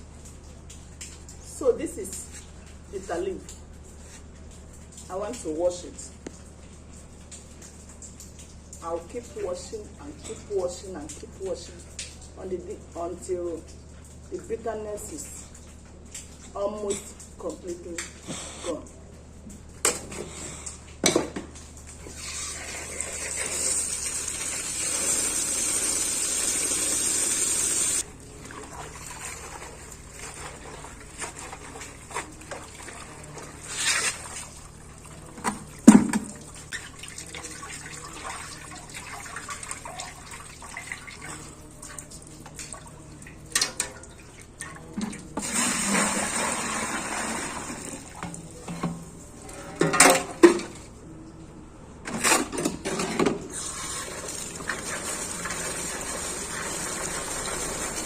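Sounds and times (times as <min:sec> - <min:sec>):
water running into a basin: 0:21.6 - 0:48.7, 0:53.5 - 0:58.0.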